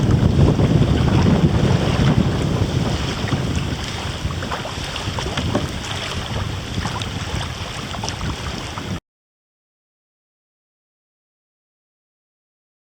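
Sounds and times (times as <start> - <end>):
water lapping and splashing: 0.0 - 9.0
wind buffeting microphone: 0.0 - 9.0.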